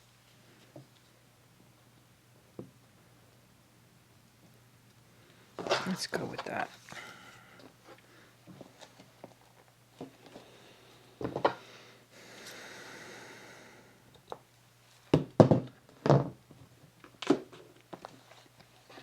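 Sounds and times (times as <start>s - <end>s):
knocks and thumps on table: 15.2s - 16.4s.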